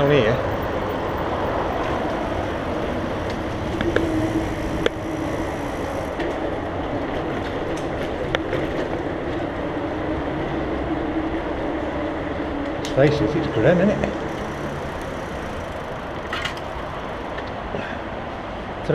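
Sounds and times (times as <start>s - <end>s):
bike rattles and clicks: 0.0s - 10.2s, 12.6s - 18.9s
bike tyres rumbling and hissing: 0.0s - 18.9s
faint steady hum: 2.1s - 6.5s.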